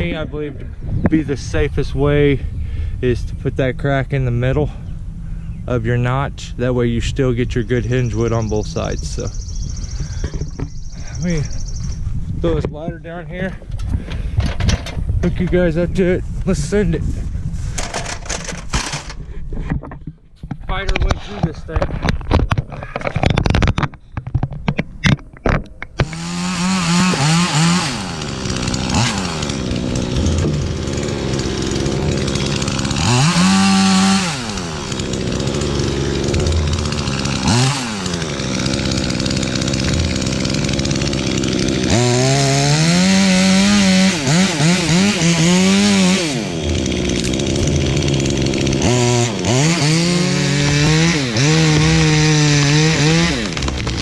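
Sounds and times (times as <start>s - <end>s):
chainsaw cutting tree trunk: 26.0s - 54.0s.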